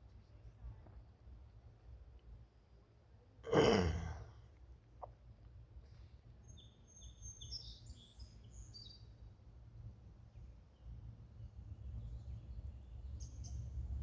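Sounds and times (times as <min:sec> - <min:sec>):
person clearing throat: 0:03.5 - 0:04.4.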